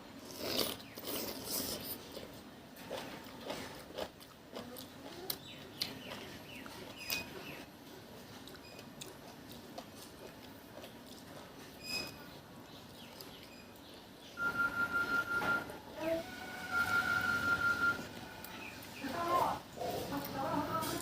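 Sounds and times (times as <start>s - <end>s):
person chewing and sucking mango: 0.2s - 7.4s, 8.2s - 13.8s.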